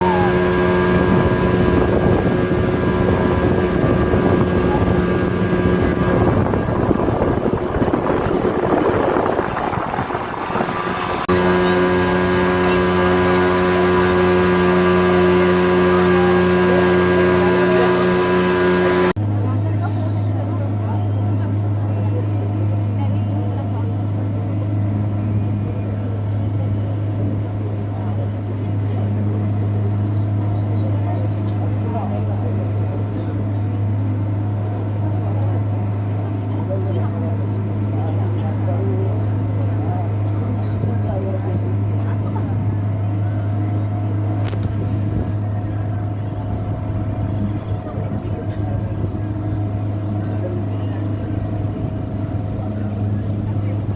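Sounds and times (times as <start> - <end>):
water rushing: 0.0 - 19.2, 44.4 - 53.9
steamer engine hum: 0.0 - 53.9
wind rushing: 0.6 - 11.3, 44.5 - 49.9.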